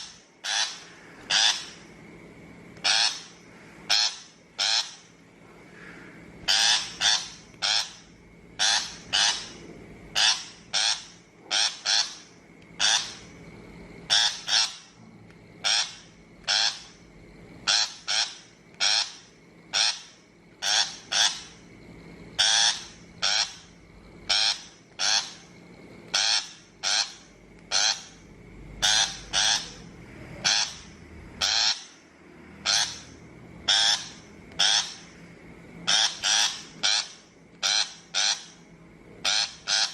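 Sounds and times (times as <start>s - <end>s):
bird giving harsh rasping calls: 0.0s - 1.9s, 2.8s - 5.1s, 6.4s - 13.3s, 14.1s - 15.0s, 15.6s - 17.0s, 17.6s - 21.6s, 22.4s - 25.5s, 26.1s - 28.2s, 28.8s - 32.0s, 32.6s - 35.2s, 35.8s - 38.6s, 39.2s - 39.9s.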